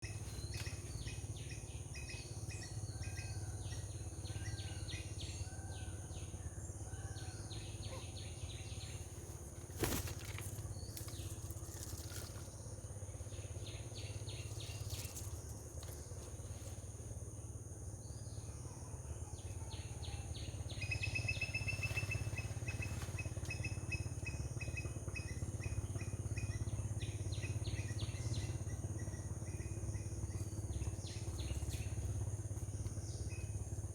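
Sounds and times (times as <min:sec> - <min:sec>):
insect drone: 0:00.0 - 0:33.9.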